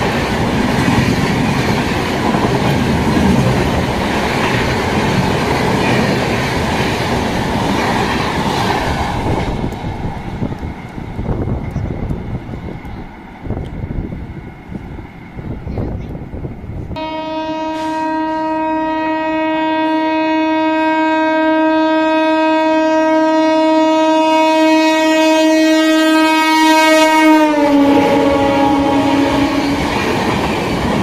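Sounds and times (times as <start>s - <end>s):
train rushing and rumbling: 0.0s - 31.0s
train horn blast: 16.9s - 30.2s.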